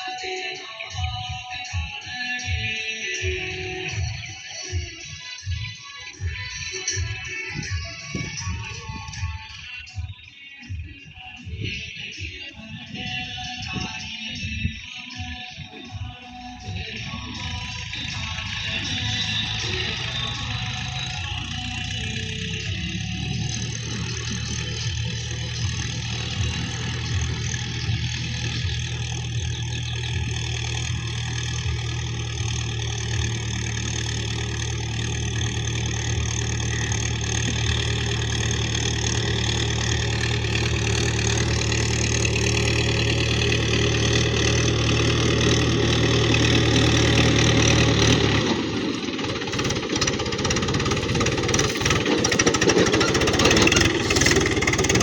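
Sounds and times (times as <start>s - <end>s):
diesel tractor engine knocking: 0.9s - 55.0s
rough noisy engine sound: 15.6s - 55.0s.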